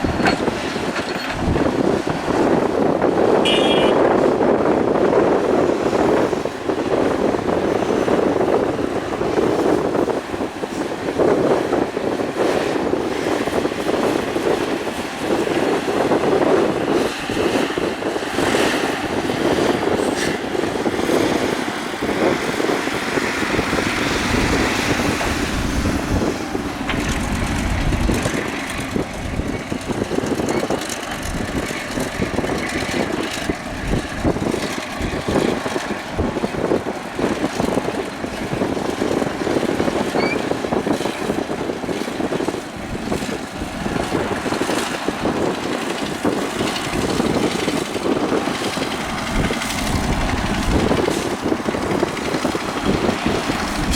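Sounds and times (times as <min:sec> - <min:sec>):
excavator diesel engine working: 0:00.0 - 0:53.9
deep rumble: 0:22.8 - 0:35.4, 0:46.7 - 0:53.9
knocks and clatter: 0:23.9 - 0:40.0.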